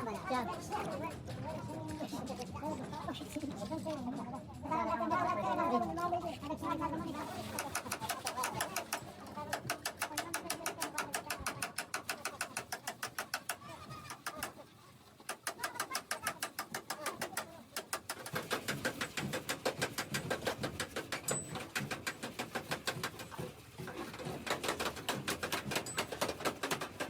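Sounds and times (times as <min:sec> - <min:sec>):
rapid sharp tapping: 0:07.2 - 0:14.6, 0:15.2 - 0:27.0.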